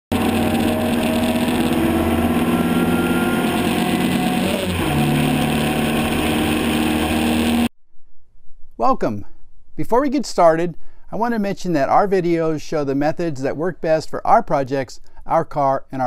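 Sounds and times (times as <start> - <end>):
race car engine running hard: 0.1 - 7.7.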